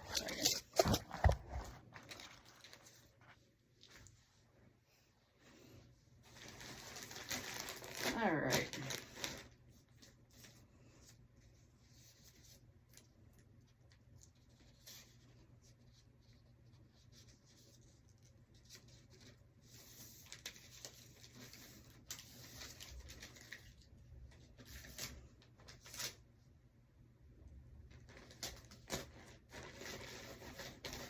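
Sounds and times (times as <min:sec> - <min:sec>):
packaging rustling and crinkling: 0:00.0 - 0:04.3, 0:06.2 - 0:11.2, 0:18.6 - 0:26.2, 0:27.9 - 0:31.0.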